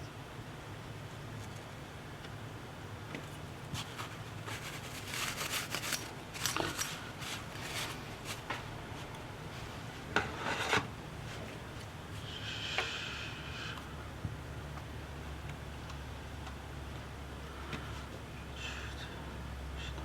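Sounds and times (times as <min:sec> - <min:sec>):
steady low hum: 0:00.0 - 0:20.0
hand tools scraping and rubbing: 0:03.8 - 0:08.6, 0:10.2 - 0:11.4.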